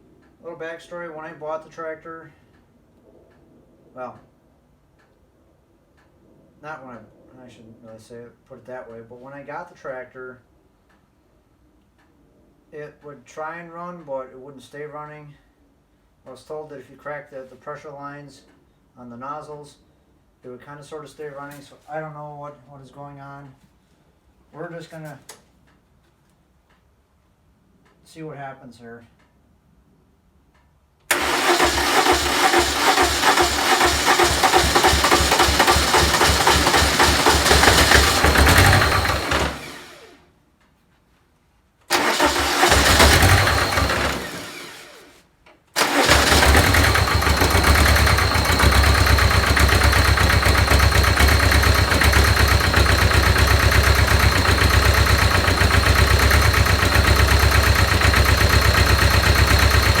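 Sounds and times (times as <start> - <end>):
diesel tractor engine starting: 31.1 - 40.2, 41.9 - 45.2, 45.8 - 60.0.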